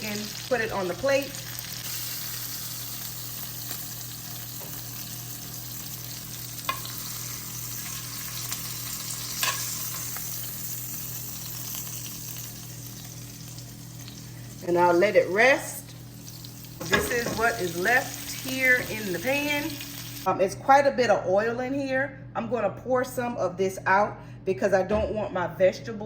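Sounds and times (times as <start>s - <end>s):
oil sizzling in a skillet: 0.0s - 20.3s.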